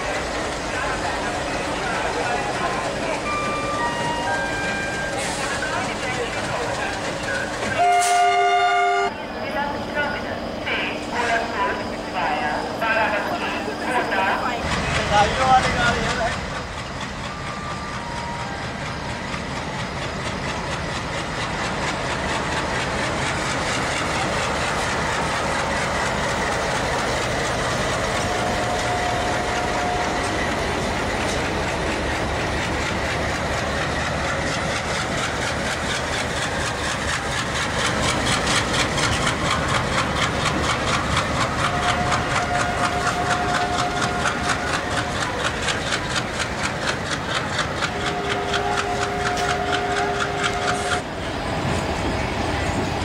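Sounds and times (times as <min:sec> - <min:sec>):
train coaches rumbling: 0:00.0 - 0:53.0
wheels clacking over rail joints: 0:14.7 - 0:51.8.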